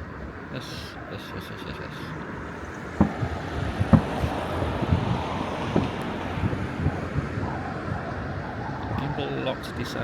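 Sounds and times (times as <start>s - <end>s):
wind on microphone: 1.8s - 10.0s
distant fireworks bangs and pops: 2.6s - 9.1s.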